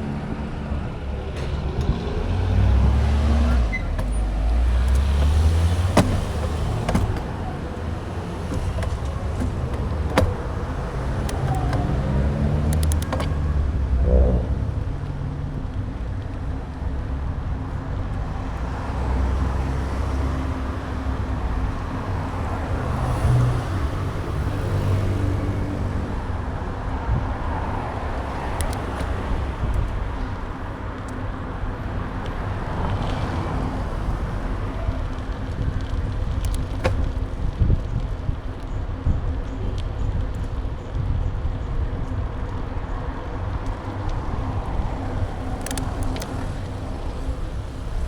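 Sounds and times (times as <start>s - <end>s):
traffic noise: 0.0s - 48.0s
vehicle engine humming: 0.0s - 48.0s
wind on microphone: 32.7s - 48.0s.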